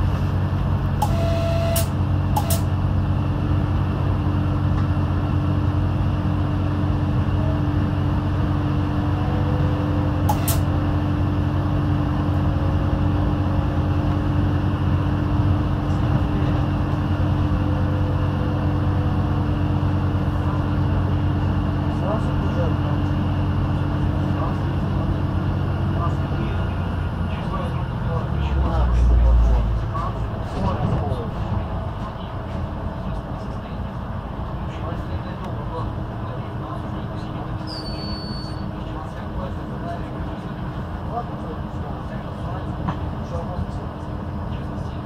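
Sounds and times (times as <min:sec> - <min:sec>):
diesel railcar engine drone: 0:00.0 - 0:45.0.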